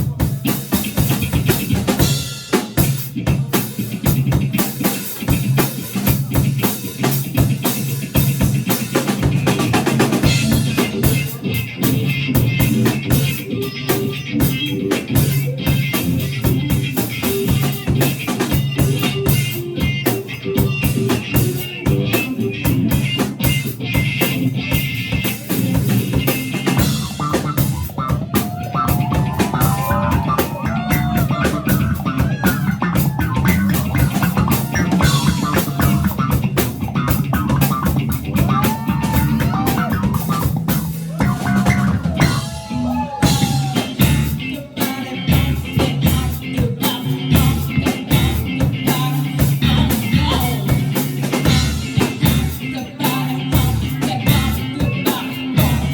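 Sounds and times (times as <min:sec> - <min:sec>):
rock band playing: 0:00.0 - 0:55.9
lead guitar bending notes: 0:21.7 - 0:46.2.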